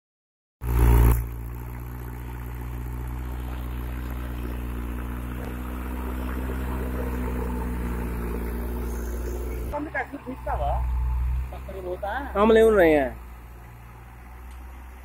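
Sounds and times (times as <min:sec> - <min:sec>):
tractor diesel engine running: 0:00.6 - 0:15.0.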